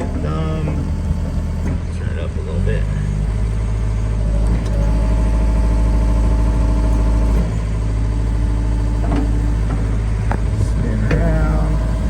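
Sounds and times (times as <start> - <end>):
excavator diesel engine running: 0.0 - 12.0
hydraulic whine: 0.0 - 12.0
short knocks: 9.0 - 12.0.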